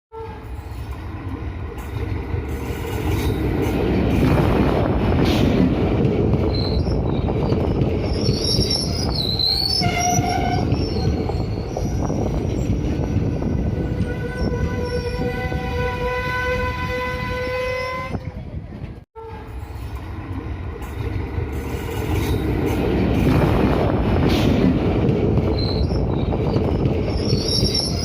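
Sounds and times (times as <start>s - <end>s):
train horn tone: 0.1s - 0.8s, 9.6s - 11.1s, 13.8s - 18.3s, 19.2s - 19.8s
train rumbling past: 0.2s - 28.0s
wheels squealing on rails: 6.3s - 18.6s, 19.2s - 23.6s, 24.2s - 28.0s.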